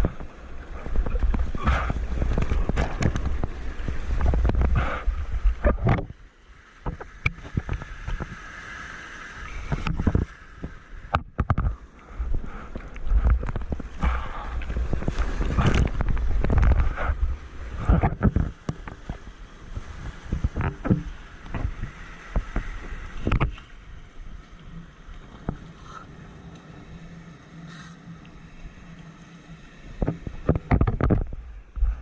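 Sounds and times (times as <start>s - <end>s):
wind buffeting microphone: 0.0s - 6.2s, 9.5s - 23.6s
surf splashing: 0.0s - 32.0s.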